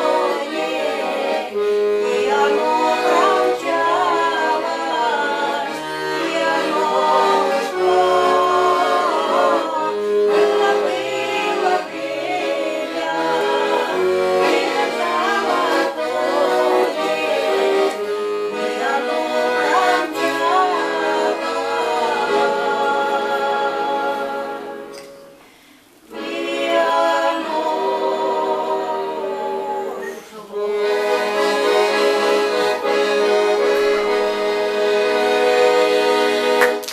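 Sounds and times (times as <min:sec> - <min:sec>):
person singing: 0:00.0 - 0:24.8
accordion playing: 0:00.0 - 0:36.9.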